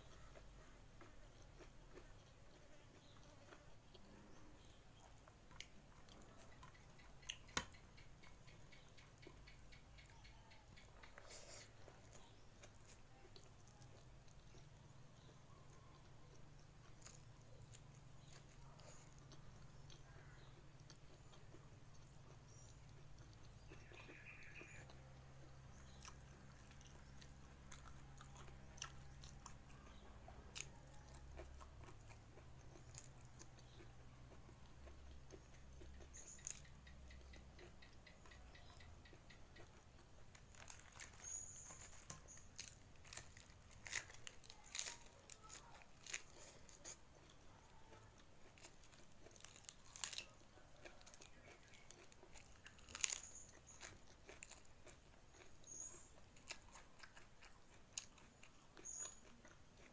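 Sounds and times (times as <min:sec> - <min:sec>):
chewing and lip smacks: 0:00.0 - 0:59.9
crunch of leaf bitten: 0:40.3 - 0:59.9.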